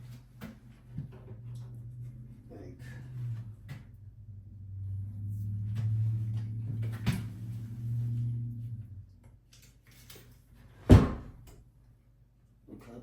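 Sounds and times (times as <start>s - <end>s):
low steady hum: 0.0s - 10.3s
wooden cabinet knocks and clunks: 10.8s - 11.4s.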